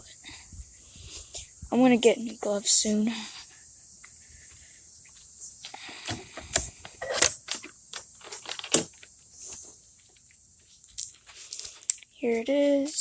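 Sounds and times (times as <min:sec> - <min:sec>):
microphone handling clicks and rustles: 0:05.0 - 0:13.0.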